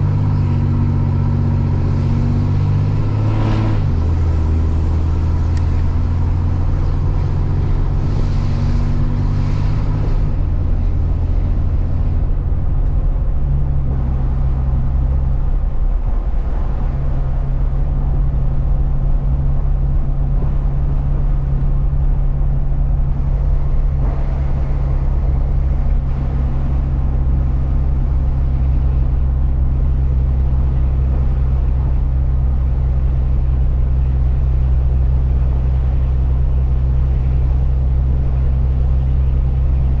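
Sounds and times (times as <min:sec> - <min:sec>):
truck engine and road drone: 0:00.0 - 0:40.0.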